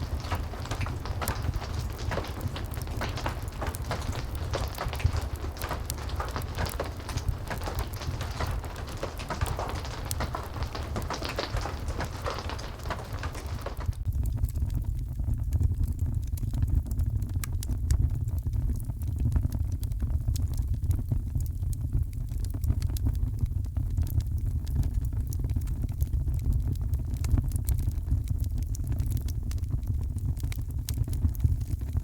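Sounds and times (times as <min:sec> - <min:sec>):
heavy rain: 0:00.0 - 0:14.0
wood fire crackling: 0:00.0 - 0:17.7, 0:25.5 - 0:32.0.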